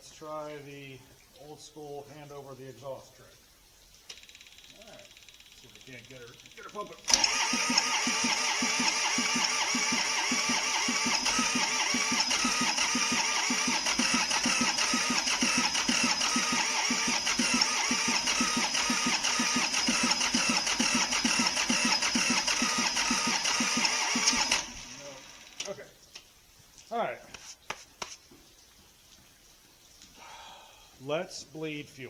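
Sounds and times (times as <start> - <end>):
electric starter whine: 4.1 - 25.9
engine chugging while cranking: 4.2 - 25.7.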